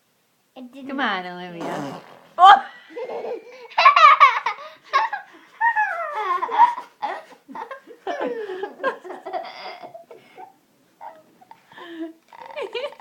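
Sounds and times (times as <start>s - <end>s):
children laughing and squealing: 2.5s - 8.3s.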